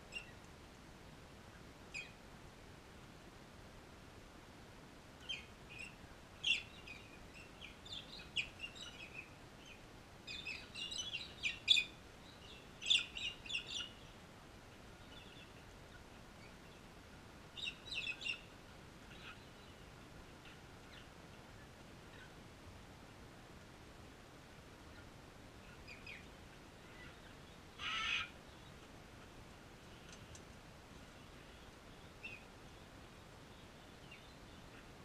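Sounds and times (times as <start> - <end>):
birds chirping: 5.2 - 14.2, 17.6 - 22.4, 24.9 - 28.9.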